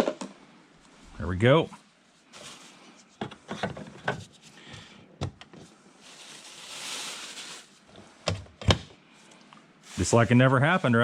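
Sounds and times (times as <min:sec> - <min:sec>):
soft hiss: 0:00.6 - 0:03.2, 0:05.6 - 0:08.2, 0:09.0 - 0:11.0.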